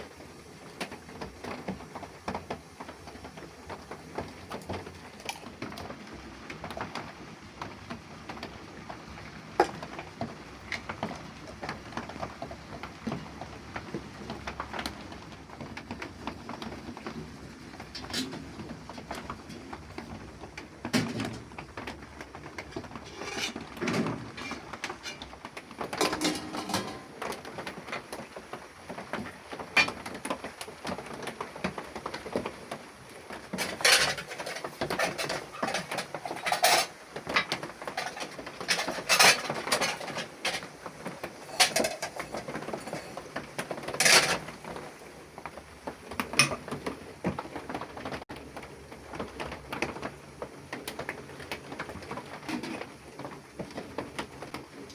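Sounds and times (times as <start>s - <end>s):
cooking pots and utensils clinking: 0.0s - 5.9s, 17.8s - 20.1s, 20.9s - 28.4s, 29.0s - 30.2s, 33.2s - 45.0s, 46.0s - 47.4s.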